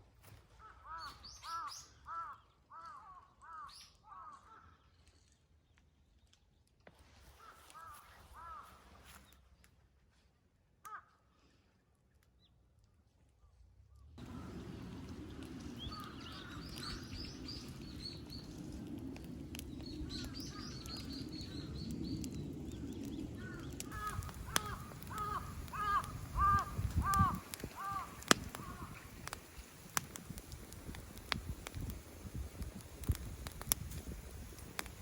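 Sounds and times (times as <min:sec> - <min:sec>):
crow cawing: 0:00.6 - 0:04.7, 0:07.4 - 0:08.8, 0:10.9 - 0:11.2, 0:15.8 - 0:17.7, 0:23.4 - 0:29.1
low rumble: 0:14.2 - 0:35.0
small birds twittering: 0:14.2 - 0:35.0
sharp snaps: 0:23.0 - 0:35.0.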